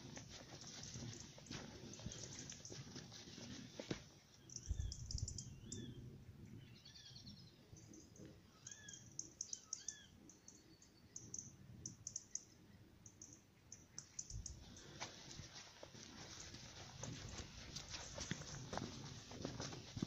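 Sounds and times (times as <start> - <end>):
birds calling with whistled notes: 4.3 - 15.0
high ticking bird notes: 11.2 - 12.5.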